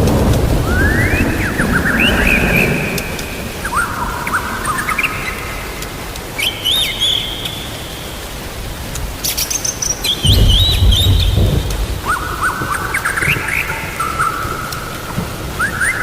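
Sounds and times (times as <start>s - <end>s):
low thunder rumble: 0.0s - 5.8s, 10.2s - 15.9s
steady rain: 0.0s - 16.0s
chirping bird calls: 0.7s - 8.2s, 9.2s - 15.0s.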